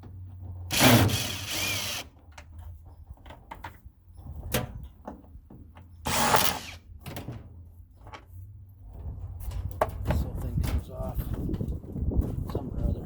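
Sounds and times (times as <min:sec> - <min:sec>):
power drill running: 0:00.7 - 0:02.1, 0:06.1 - 0:06.8.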